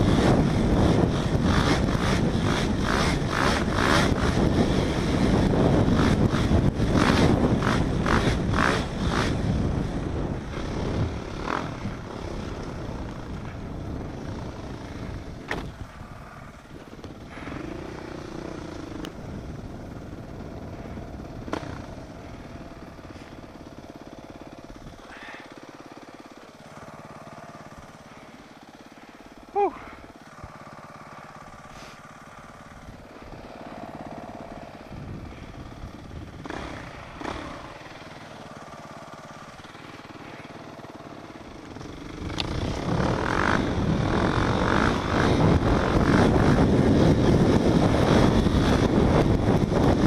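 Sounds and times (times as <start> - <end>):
motor vehicle running: 0.0 - 50.0.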